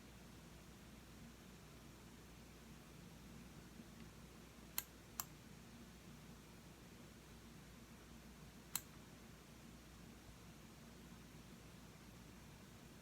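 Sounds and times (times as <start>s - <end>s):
faint room hum: 0.0s - 13.0s
computer mouse clicking: 8.7s - 8.9s.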